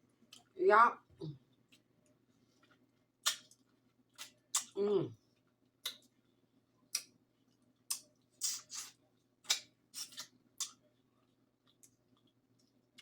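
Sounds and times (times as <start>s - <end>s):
wet mouth clicks and smacks: 3.2s - 3.6s.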